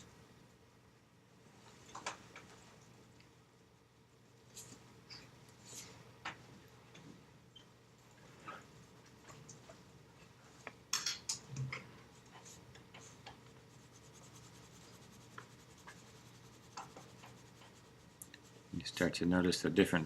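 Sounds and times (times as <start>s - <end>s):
pencil scratching on paper: 12.4s - 18.7s.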